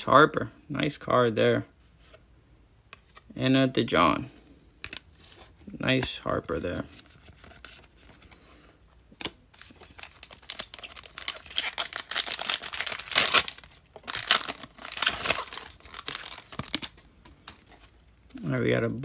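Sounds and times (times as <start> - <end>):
wrapper crinkling: 9.6 - 18.4.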